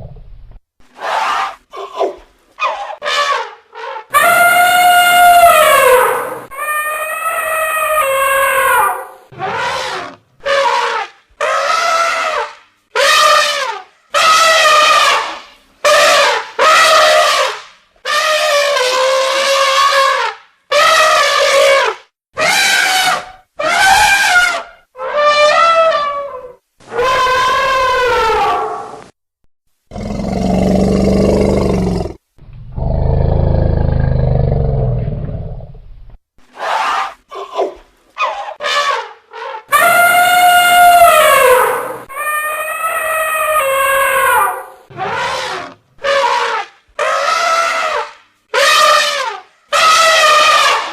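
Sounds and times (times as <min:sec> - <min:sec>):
elephants trumpeting: 0:02.6 - 0:15.2, 0:22.4 - 0:28.9, 0:38.2 - 0:50.9
elephants roaring: 0:29.9 - 0:35.5.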